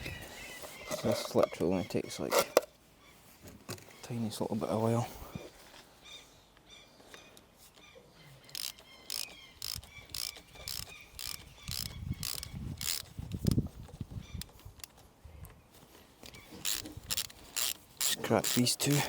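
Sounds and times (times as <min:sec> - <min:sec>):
ratchet spanner clicking: 0:08.5 - 0:13.6, 0:16.6 - 0:19.0.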